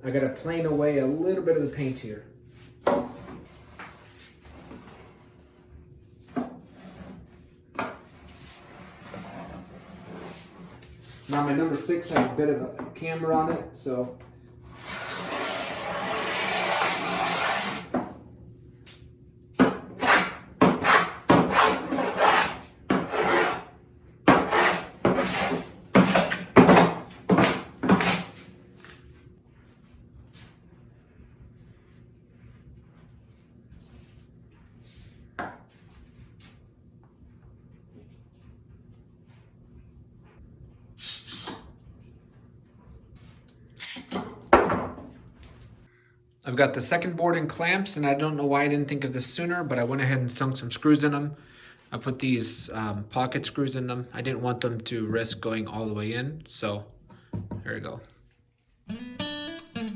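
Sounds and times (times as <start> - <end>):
hand plane strokes on wood: 14.8 - 17.9, 20.0 - 23.7, 24.3 - 26.4.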